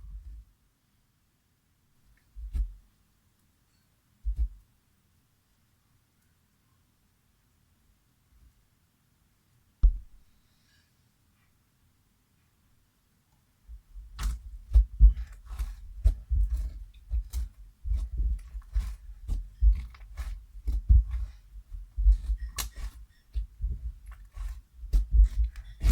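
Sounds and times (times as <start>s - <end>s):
slime squelching: 14.2s - 25.9s.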